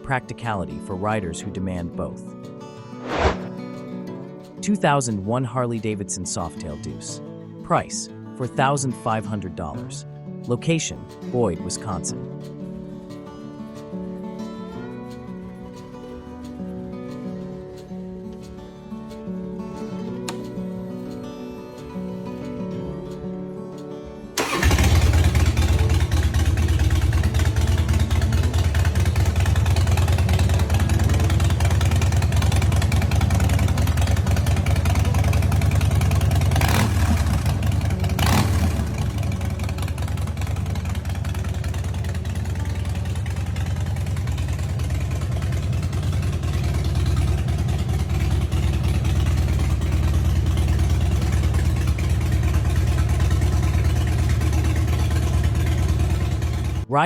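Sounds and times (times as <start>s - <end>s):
brief sharp sounds: 3.0s - 3.7s
motorcycle engine running: 24.4s - 56.9s.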